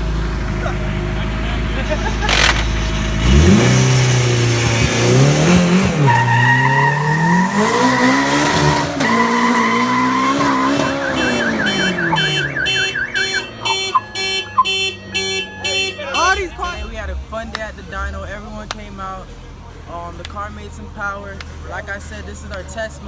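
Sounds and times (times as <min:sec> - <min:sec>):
engine-like rising and falling sound: 0:00.0 - 0:15.2
car alarm siren: 0:05.2 - 0:17.1.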